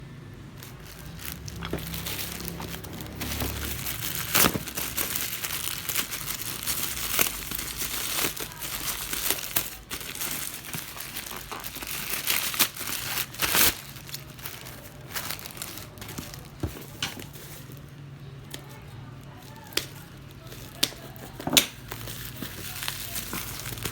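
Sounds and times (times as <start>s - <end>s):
packaging crinkling and rustling: 0.5s - 23.9s.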